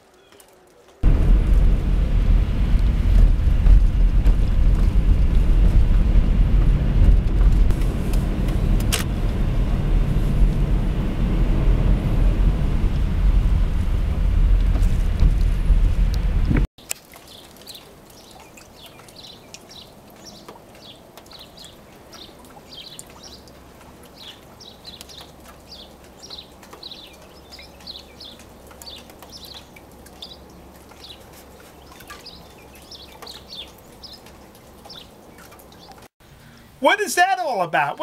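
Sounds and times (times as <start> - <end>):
small birds chirping: 0.0 - 1.0, 17.1 - 36.1
faint outdoor hiss: 16.8 - 38.0.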